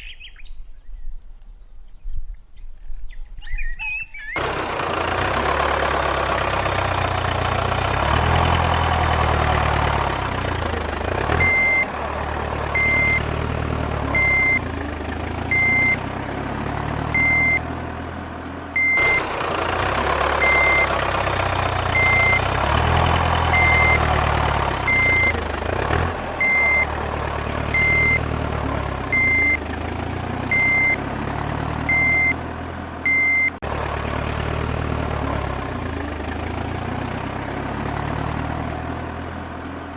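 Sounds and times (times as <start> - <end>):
vehicle engine running: 4.4 - 39.9
reversing alarm beeping: 11.4 - 11.9, 12.7 - 13.4, 14.1 - 14.7, 15.5 - 16.0, 17.1 - 17.6, 18.8 - 19.3, 20.4 - 21.0, 21.9 - 22.4, 23.5 - 24.1, 24.8 - 25.4, 26.4 - 26.9, 27.7 - 28.3, 29.1 - 29.6, 30.5 - 31.0, 31.9 - 32.4, 33.0 - 33.6.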